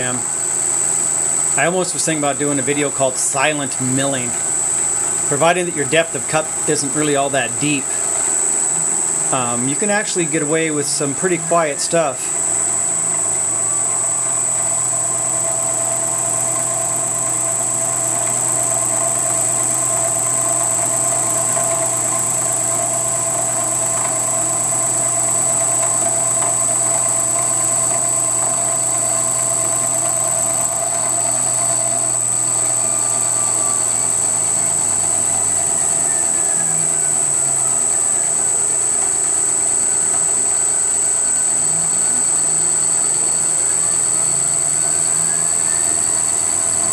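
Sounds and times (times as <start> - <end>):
milling machine whine: 0.0 - 46.9.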